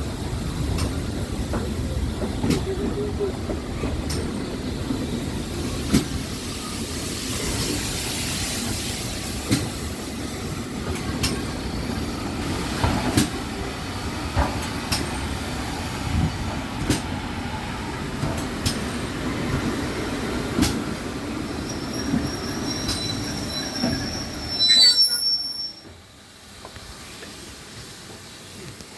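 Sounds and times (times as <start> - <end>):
train rumbling on rails: 0.0 - 28.9
wheels and brakes squealing: 21.4 - 26.0.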